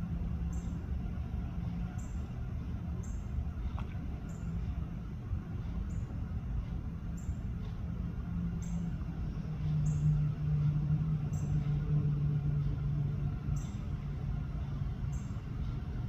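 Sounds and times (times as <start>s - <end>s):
low hum: 0.0s - 16.0s
bird chirping: 0.4s - 0.8s, 3.0s - 3.3s, 8.6s - 12.0s, 13.4s - 14.2s, 14.8s - 15.8s.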